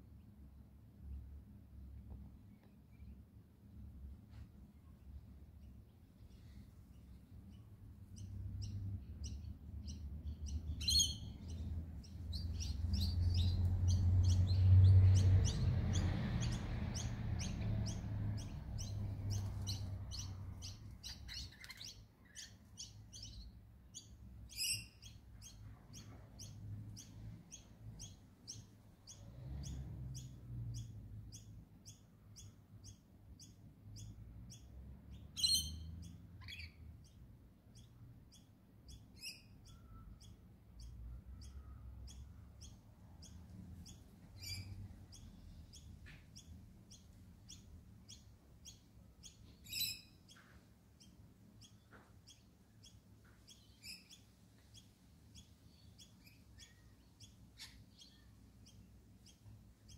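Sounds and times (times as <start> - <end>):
birds chirping: 4.9 - 59.9.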